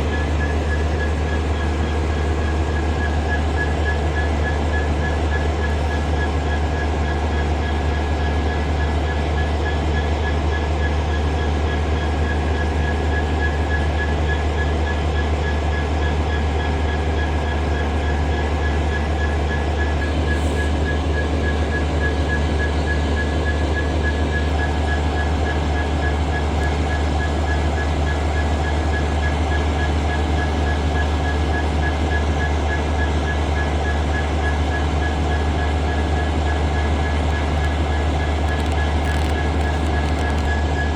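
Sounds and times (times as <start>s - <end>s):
locomotive engine rumbling: 0.0s - 40.9s
high whine: 19.7s - 28.5s.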